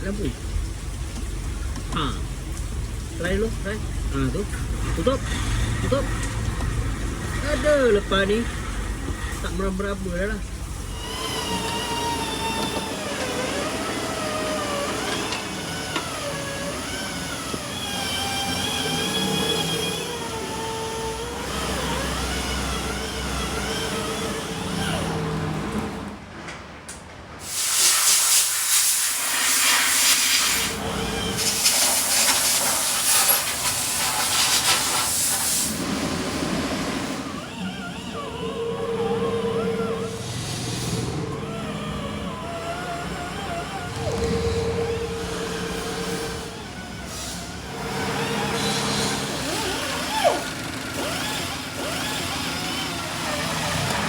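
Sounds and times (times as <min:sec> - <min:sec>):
loud hissing bursts: 0:27.4 - 0:35.9.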